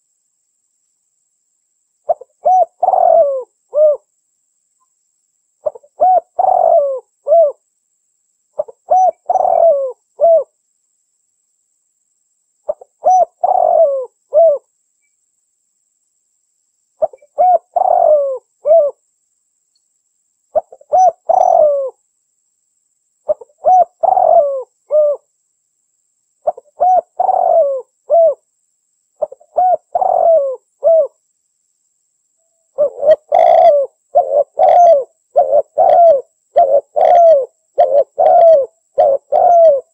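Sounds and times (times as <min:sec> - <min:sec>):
dove cooing: 0:02.1 - 0:04.1, 0:05.6 - 0:07.6, 0:08.6 - 0:10.5, 0:12.7 - 0:14.7, 0:17.0 - 0:19.0, 0:20.6 - 0:22.0, 0:23.3 - 0:25.3, 0:26.4 - 0:28.4, 0:29.2 - 0:31.2, 0:32.8 - 0:39.9.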